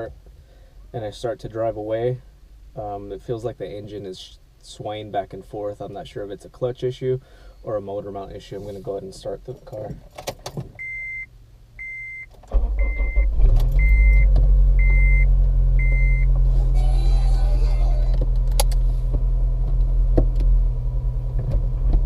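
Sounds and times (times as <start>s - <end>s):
dashboard warning chime beeping: 10.8s - 16.3s
car engine starting and idling: 11.8s - 22.0s.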